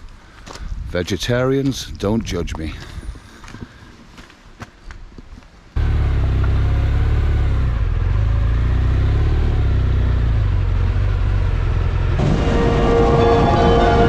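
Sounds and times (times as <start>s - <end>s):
motorcycle engine rumbling: 5.8s - 14.0s.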